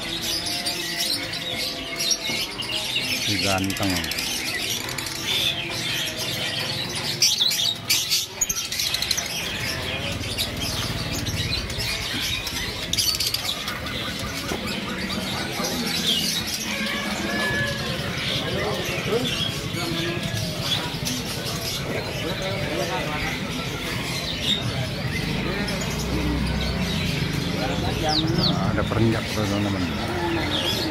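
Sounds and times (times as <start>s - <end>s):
caged birds chirping: 0.0s - 30.9s.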